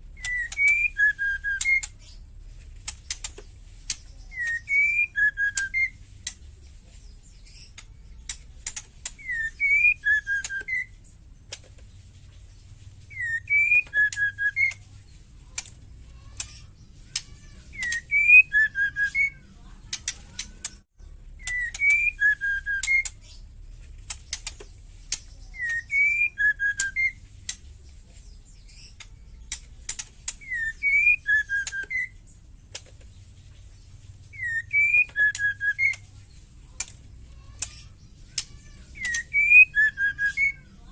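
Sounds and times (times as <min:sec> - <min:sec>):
bird whistled calls: 0:00.1 - 0:02.2, 0:03.9 - 0:06.0, 0:09.1 - 0:11.1, 0:13.1 - 0:14.8, 0:16.3 - 0:19.5, 0:21.4 - 0:23.4, 0:25.2 - 0:27.2, 0:30.4 - 0:32.3, 0:34.2 - 0:36.1, 0:37.6 - 0:40.9
sharp clicking rattles: 0:00.1 - 0:40.4.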